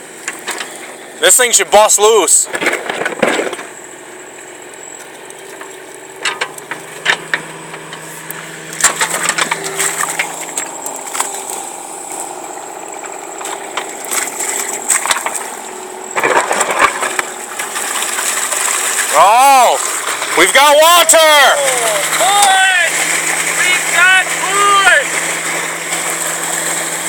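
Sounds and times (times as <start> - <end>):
machine engine running: 0.0 - 27.0
sharp knocks and cracks: 2.5 - 3.7, 5.4 - 8.0, 8.8 - 11.6.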